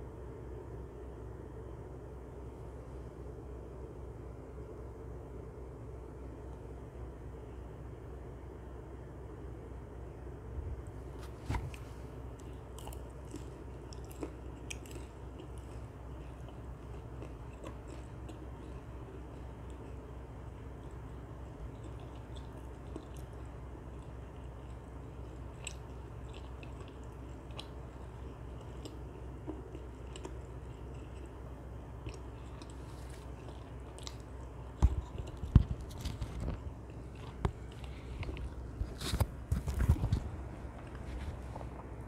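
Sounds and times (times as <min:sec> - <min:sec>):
steady low hum: 0:00.0 - 0:42.0
chewing mouth clicks: 0:12.4 - 0:20.0, 0:21.7 - 0:31.4, 0:32.0 - 0:39.0.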